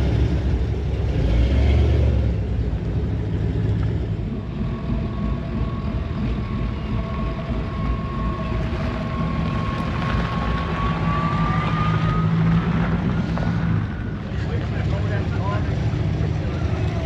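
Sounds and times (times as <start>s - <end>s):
truck engine rumbling: 0.0s - 17.0s
thin whine: 4.1s - 15.7s.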